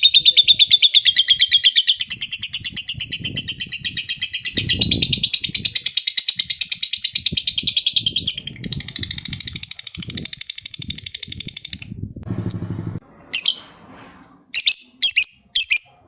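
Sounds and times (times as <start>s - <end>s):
lovebird chattering trill: 0.0s - 12.7s.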